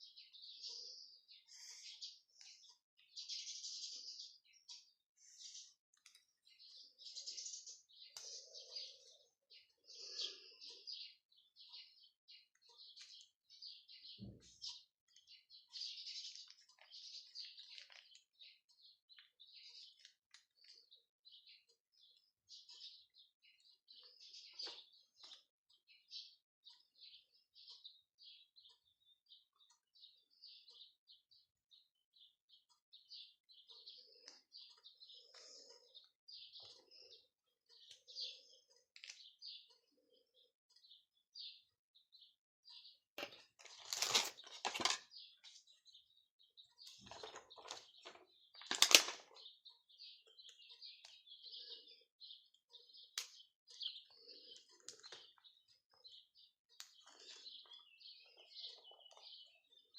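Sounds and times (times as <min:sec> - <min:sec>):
small bird chirping: 0:00.0 - 0:59.9.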